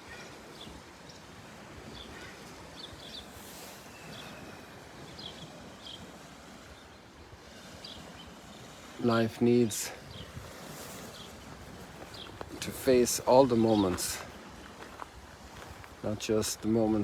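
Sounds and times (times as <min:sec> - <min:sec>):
small birds chirping: 0:00.0 - 0:06.1, 0:07.8 - 0:08.8, 0:10.0 - 0:16.2
outdoor background hiss: 0:00.0 - 0:17.0.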